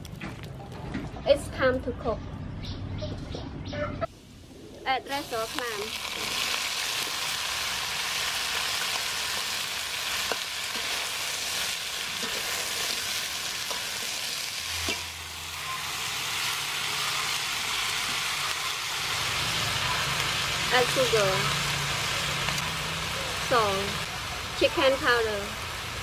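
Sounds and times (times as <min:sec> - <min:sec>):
clams sizzling in hot oil: 0:04.1 - 0:26.0
metal spatula scraping a pan: 0:10.2 - 0:15.8.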